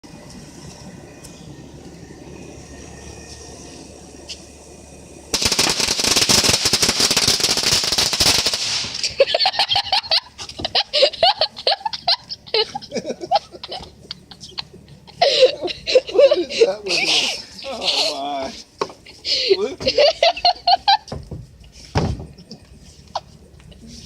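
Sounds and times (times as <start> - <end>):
firecrackers popping: 5.3 - 9.3.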